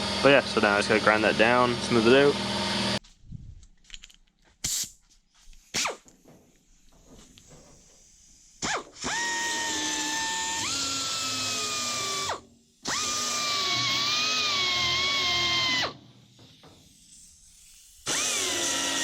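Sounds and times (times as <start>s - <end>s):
electric grinder grinding metal: 0.0s - 3.0s, 7.7s - 19.0s.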